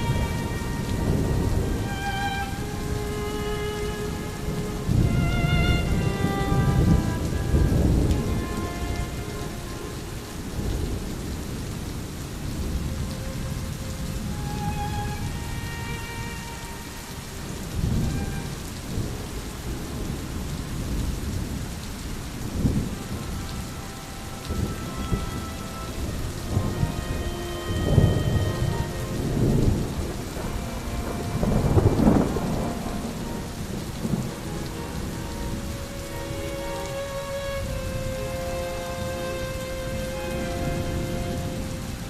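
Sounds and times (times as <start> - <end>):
steady rain: 0.0 - 42.0
thunder rumbling: 0.0 - 42.0.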